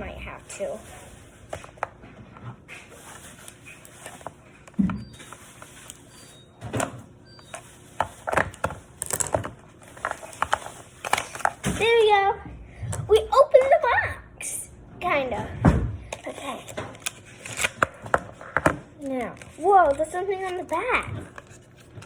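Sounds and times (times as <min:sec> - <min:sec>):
packaging clicks and scrapes: 0:02.6 - 0:12.0, 0:16.1 - 0:22.0.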